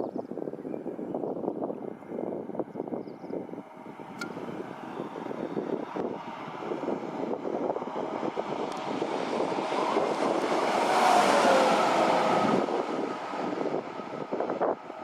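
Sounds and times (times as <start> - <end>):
train passing: 4.0 - 15.0.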